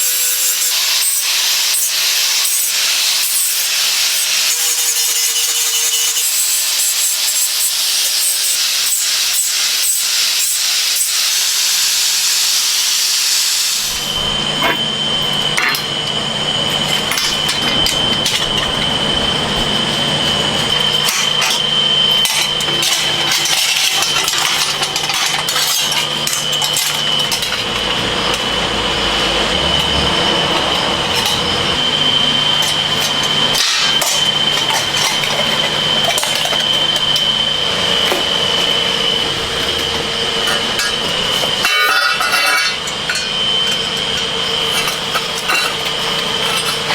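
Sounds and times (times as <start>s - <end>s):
machine running with high whine: 0.0s - 46.9s
rasping sawing sound: 13.8s - 46.9s.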